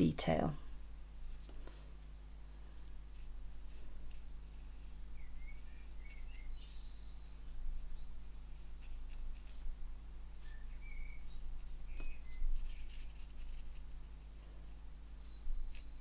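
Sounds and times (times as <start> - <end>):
low electrical hum: 0.0 - 16.0
small birds chirping and trilling: 3.7 - 16.0.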